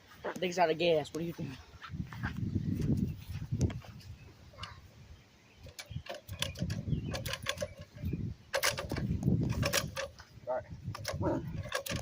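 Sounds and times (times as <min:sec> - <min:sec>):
light clicks and rattles: 0:05.6 - 0:10.3, 0:10.9 - 0:12.0.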